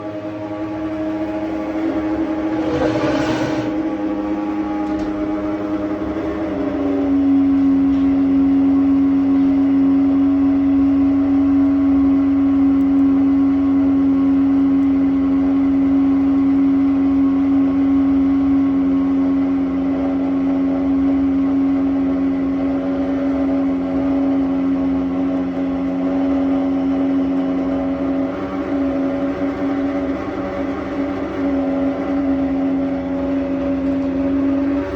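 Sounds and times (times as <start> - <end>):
gas boiler humming: 1.5 - 6.9.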